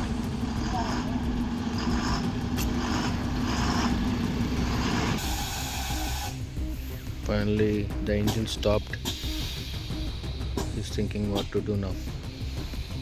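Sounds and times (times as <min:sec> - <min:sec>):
air brakes hissing: 0:00.0 - 0:07.0, 0:09.0 - 0:10.8, 0:11.4 - 0:13.0
truck diesel engine running: 0:00.0 - 0:07.0.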